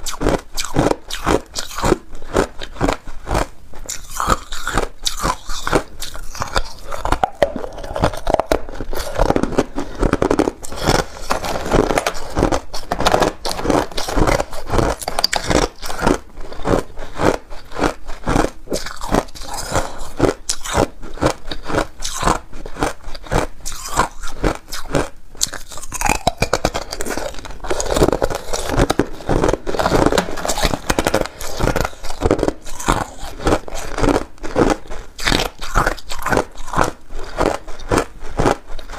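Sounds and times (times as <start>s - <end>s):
ice being chewed: 0.0s - 38.9s.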